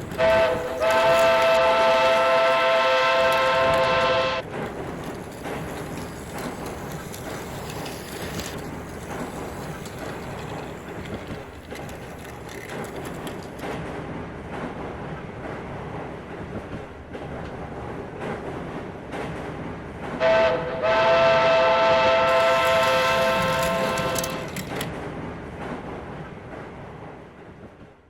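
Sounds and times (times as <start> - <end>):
toy train motor whirring: 0.0 - 13.7, 22.2 - 24.9
wheels clicking on plastic track: 0.0 - 13.8, 22.2 - 25.0.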